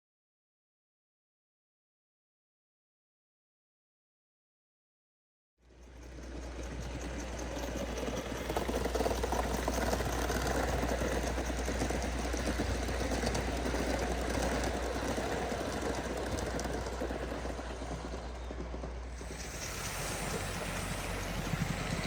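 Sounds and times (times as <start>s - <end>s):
model steam locomotive chuffing: 5.6s - 22.0s
wheel clatter: 5.8s - 22.0s.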